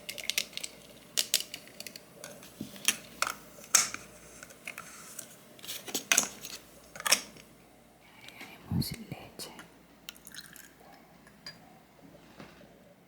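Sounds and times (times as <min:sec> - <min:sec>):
small hard pieces clicking and tapping: 0:00.0 - 0:04.0.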